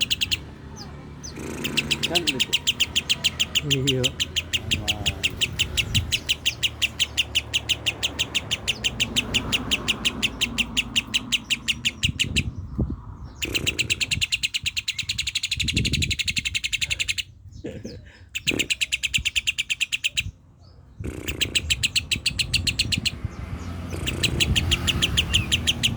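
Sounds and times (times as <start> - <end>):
lovebird chirping: 0.0 - 25.9.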